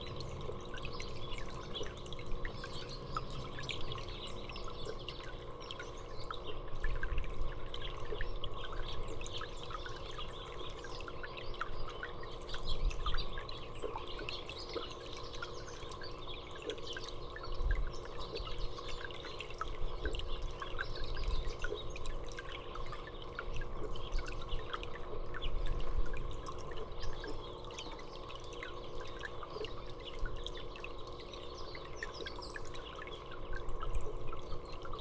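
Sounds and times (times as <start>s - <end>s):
small songbirds chirping: 0.0s - 25.8s, 26.4s - 35.0s
dripping and trickling water: 0.0s - 35.0s.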